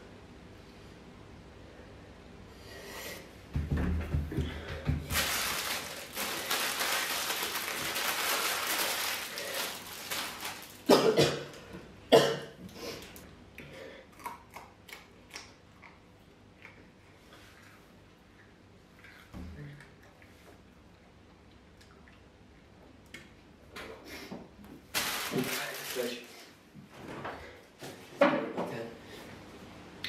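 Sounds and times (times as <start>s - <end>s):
man coughing: 10.9s - 11.5s, 12.1s - 12.6s.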